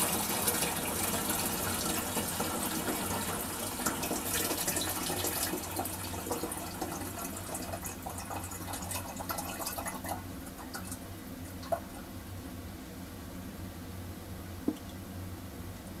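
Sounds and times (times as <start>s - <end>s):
toilet cistern refilling: 0.0s - 12.0s.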